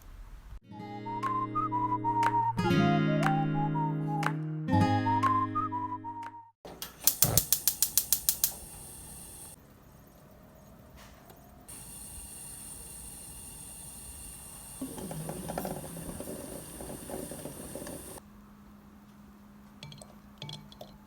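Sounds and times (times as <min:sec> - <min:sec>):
rapid clicks: 0:06.8 - 0:09.6
steady hiss: 0:06.8 - 0:09.6, 0:11.7 - 0:18.2.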